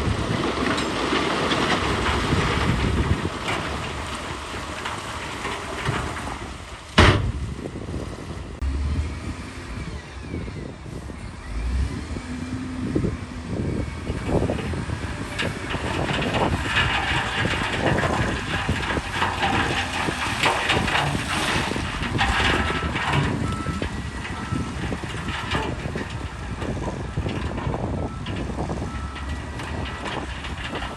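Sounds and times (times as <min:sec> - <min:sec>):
heavy machinery engine: 0:00.0 - 0:30.9
metallic clanks and knocks: 0:14.1 - 0:30.9.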